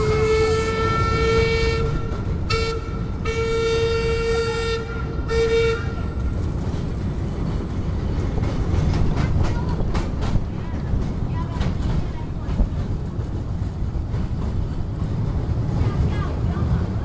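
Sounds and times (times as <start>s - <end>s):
train whistle blasts: 0.0s - 6.1s
moving train rumble: 0.0s - 17.0s.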